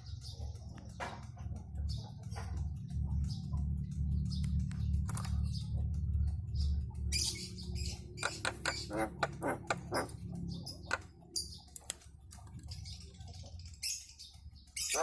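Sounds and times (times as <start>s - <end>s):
low steady hum: 0.0s - 14.7s
myna squawks and clicks: 8.2s - 12.0s.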